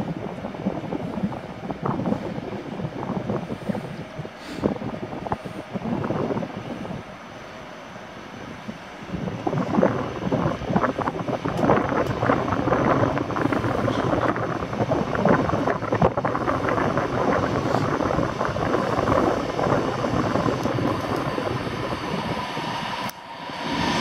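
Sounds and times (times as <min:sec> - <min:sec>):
train rumbling: 0:00.0 - 0:24.0
wind on microphone: 0:00.0 - 0:24.0.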